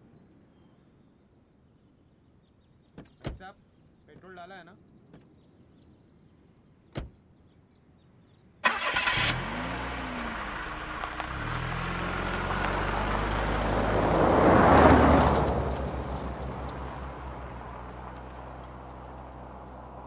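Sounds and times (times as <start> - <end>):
car engine starting and revving: 8.6 - 20.0
tyres on gravel: 8.6 - 20.0.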